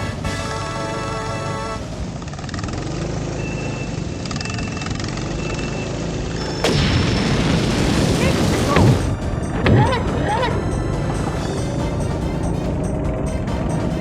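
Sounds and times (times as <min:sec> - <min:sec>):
background music: 0:00.0 - 0:02.2, 0:06.4 - 0:14.0
go-kart engines running: 0:00.0 - 0:06.7, 0:08.0 - 0:14.0
loud rush of noise: 0:06.3 - 0:12.8.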